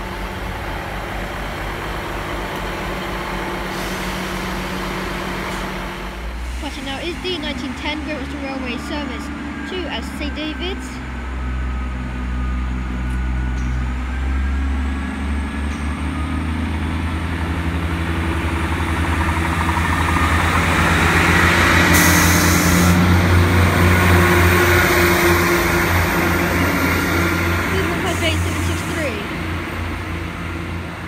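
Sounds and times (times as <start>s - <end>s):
diesel train engines running: 0.0s - 31.0s.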